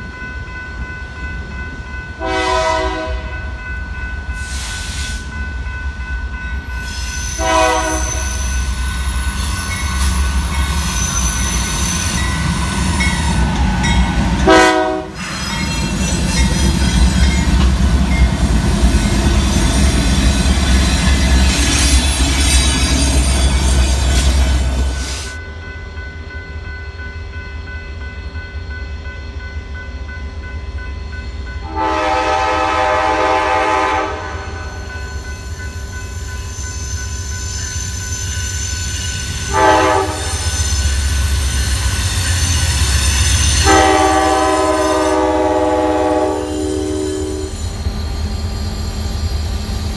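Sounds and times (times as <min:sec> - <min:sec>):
train rumble and wheel noise: 0:00.0 - 0:49.9
train horn blasts: 0:02.2 - 0:03.5, 0:07.2 - 0:08.7, 0:14.3 - 0:15.3, 0:31.6 - 0:34.6, 0:39.4 - 0:40.9, 0:43.3 - 0:47.6.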